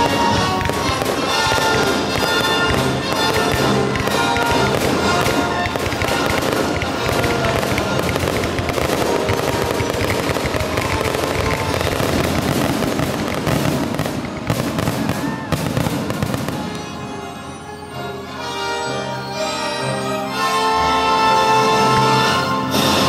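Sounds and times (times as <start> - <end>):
fireworks bangs: 0.0 - 17.6
fireworks crackling and bursting: 0.0 - 23.0
symphony orchestra playing: 0.0 - 23.0.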